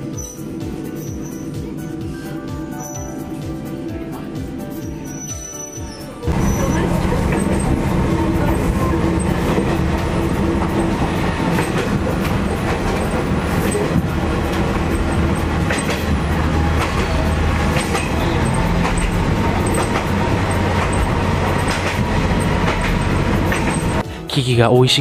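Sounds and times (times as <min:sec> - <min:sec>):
diesel railcar engine hum: 0:00.0 - 0:24.3
wheels clicking over rails: 0:06.3 - 0:24.0.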